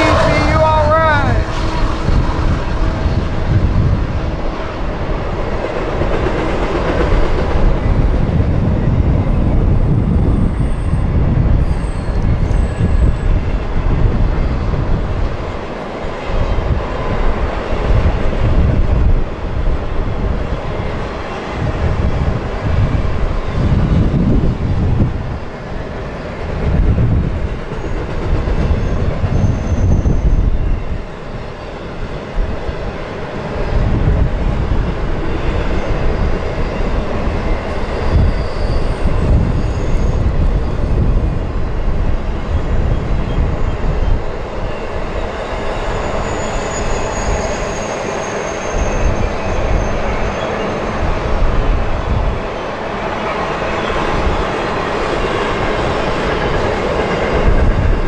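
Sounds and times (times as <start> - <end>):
train wheels rumbling on bridge: 0.0 - 58.0
faint high squeal: 10.3 - 13.3, 28.8 - 31.0, 35.7 - 41.1, 44.6 - 51.1.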